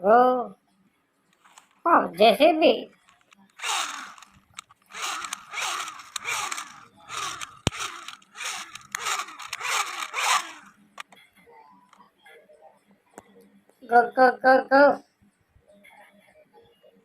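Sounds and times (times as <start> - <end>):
toy wheels and gears whirring: 3.1 - 11.1
sharp plastic click: 3.2 - 11.2.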